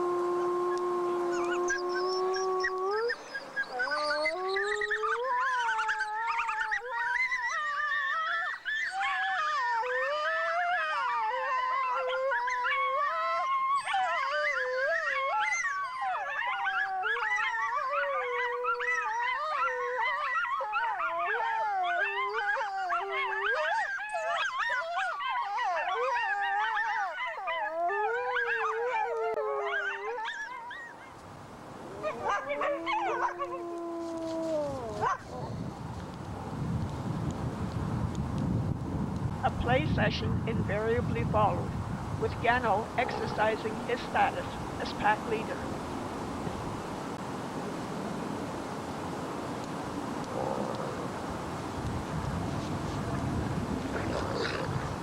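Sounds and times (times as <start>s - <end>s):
wolves and coyotes howling: 0.0s - 31.2s, 31.8s - 35.6s, 52.8s - 55.0s.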